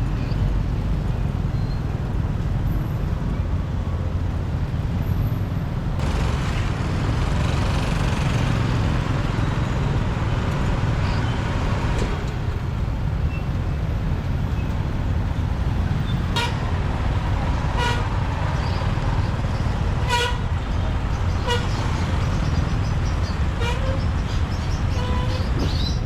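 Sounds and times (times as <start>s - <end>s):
motorbike engine rumble: 0.2s - 26.0s
vehicle horn tooting: 16.3s - 16.9s, 17.7s - 18.8s, 20.0s - 20.7s, 21.4s - 22.0s, 23.5s - 24.2s, 24.9s - 25.7s.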